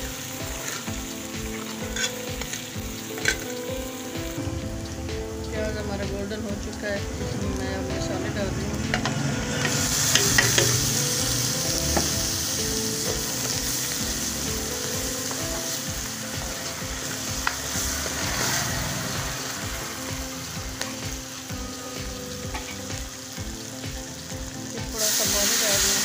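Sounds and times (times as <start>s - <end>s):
food sizzling in a pan: 0.0s - 26.0s
metal spoon scraping a pan: 1.6s - 3.5s, 8.9s - 10.9s.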